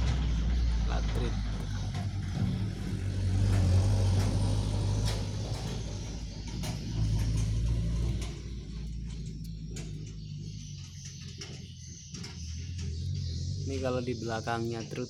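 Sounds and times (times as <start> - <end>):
truck engine humming past: 0.0 - 15.0.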